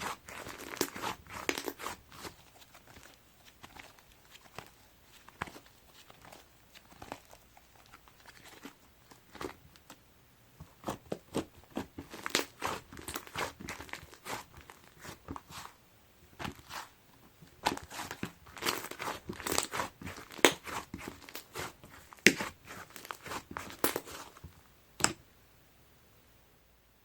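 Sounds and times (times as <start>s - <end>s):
slime squished by hand: 10.8s - 15.7s.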